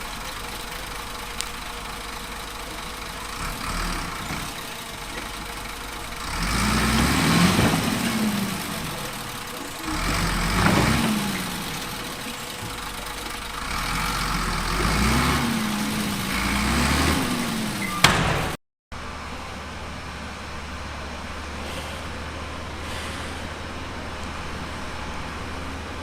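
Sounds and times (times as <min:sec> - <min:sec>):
diesel engine surging: 0:00.0 - 0:26.0
sharp knock: 0:18.0 - 0:18.6.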